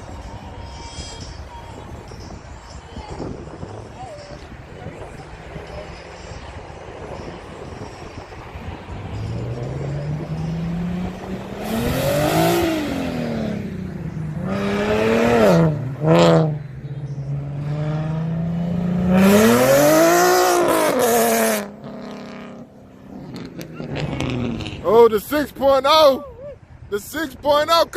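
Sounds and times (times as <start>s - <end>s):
car engine revving hard: 9.2s - 16.6s, 17.2s - 24.8s.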